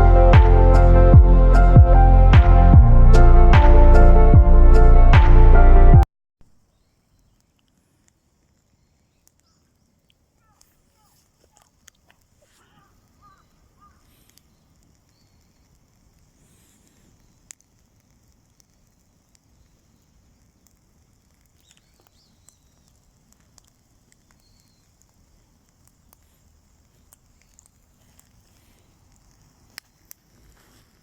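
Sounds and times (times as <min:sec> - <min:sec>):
campfire crackling: 0:06.4 - 0:31.0
burning wood popping: 0:06.5 - 0:31.0.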